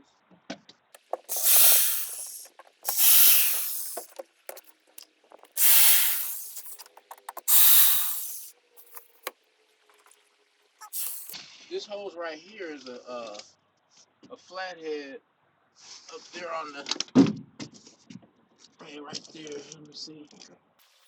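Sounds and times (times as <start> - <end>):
loud hissing bursts: 1.0 - 9.3, 10.8 - 11.4.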